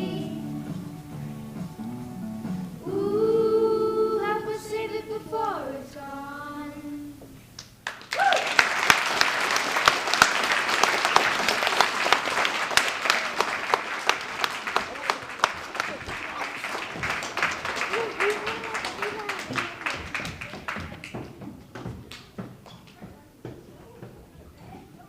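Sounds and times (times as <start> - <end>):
children's choir singing: 0.0 - 1.2, 2.8 - 7.2
audience applause: 7.8 - 22.3.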